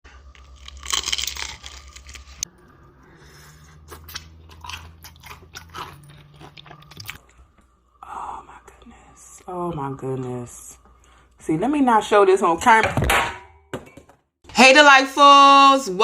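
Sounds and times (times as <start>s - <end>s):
crunchy fried chicken chewing: 0.2s - 2.6s, 3.3s - 7.4s.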